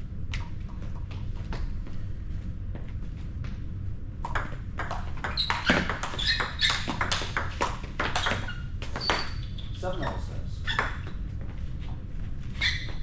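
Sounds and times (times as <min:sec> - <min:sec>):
table tennis ball clicking: 0:04.3 - 0:08.4.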